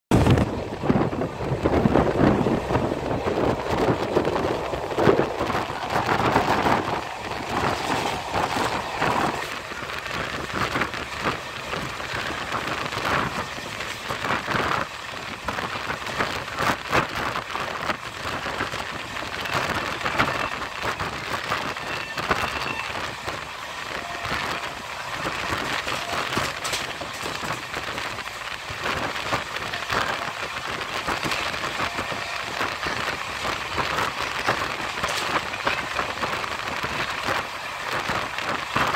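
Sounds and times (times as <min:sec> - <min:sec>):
train wheel and rail noise: 0:00.1 - 0:38.9
sharp rail clacks: 0:24.1 - 0:36.5.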